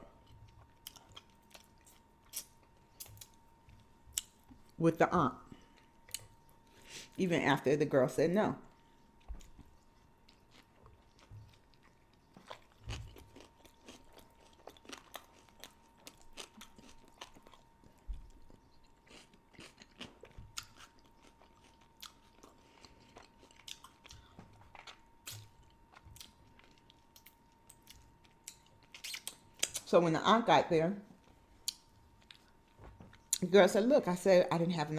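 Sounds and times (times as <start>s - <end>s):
faint high hum: 0.0s - 34.9s
close chewing with wet mouth clicks: 8.6s - 29.8s.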